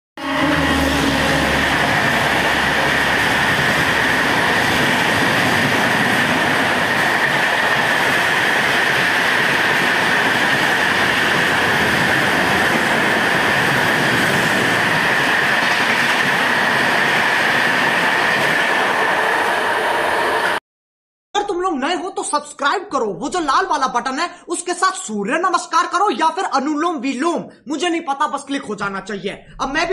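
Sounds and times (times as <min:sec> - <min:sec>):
train wheel and rail noise: 0:00.2 - 0:20.6.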